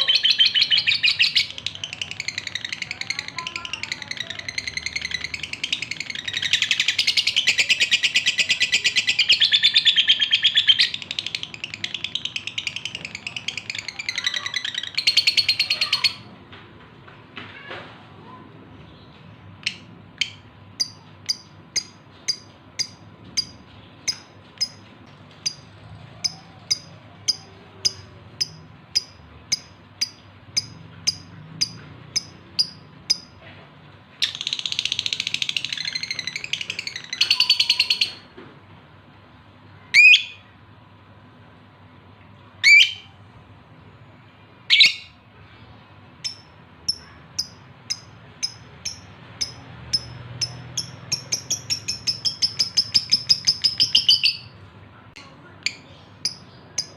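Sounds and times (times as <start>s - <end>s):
lovebird chirping and screeching: 0.0s - 16.3s, 34.2s - 38.2s, 39.9s - 40.5s, 42.6s - 43.2s, 44.7s - 45.2s, 46.2s - 54.6s.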